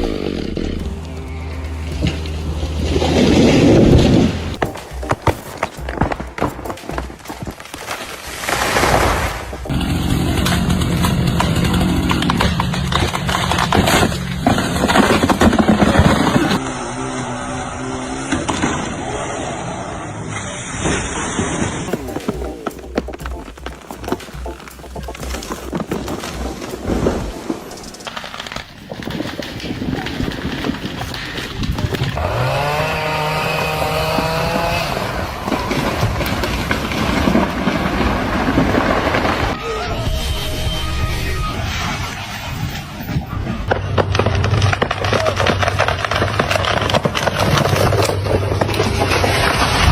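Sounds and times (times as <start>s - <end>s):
engine running: 0.0s - 5.2s, 9.5s - 15.7s
loud crackles and snaps: 1.8s - 16.6s, 20.3s - 40.2s, 41.6s - 49.9s
engine revving: 9.6s - 20.4s, 32.0s - 35.9s.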